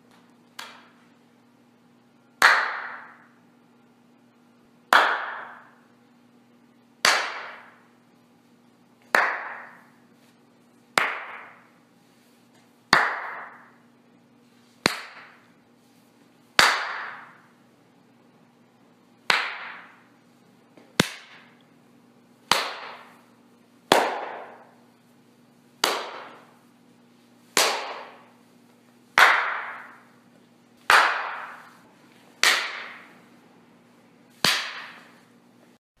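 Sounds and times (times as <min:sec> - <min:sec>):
hand claps with echo: 0:00.1 - 0:01.0, 0:02.3 - 0:03.4, 0:04.9 - 0:05.9, 0:07.0 - 0:07.9, 0:09.0 - 0:10.0, 0:10.9 - 0:11.8, 0:12.9 - 0:13.8, 0:14.8 - 0:15.5, 0:16.6 - 0:17.6, 0:19.2 - 0:20.1, 0:20.8 - 0:21.6, 0:22.5 - 0:23.3, 0:23.9 - 0:24.8, 0:25.8 - 0:26.6, 0:27.5 - 0:28.4, 0:29.1 - 0:30.2, 0:30.8 - 0:31.8, 0:32.4 - 0:33.2, 0:34.4 - 0:35.2.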